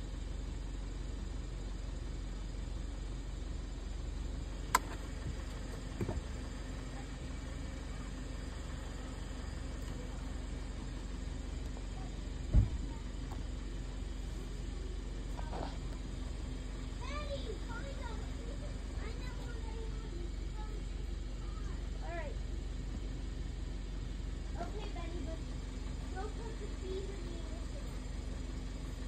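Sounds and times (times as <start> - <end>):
car engine idling: 0.0 - 29.0
heavy thump: 5.2 - 6.3, 12.5 - 13.0.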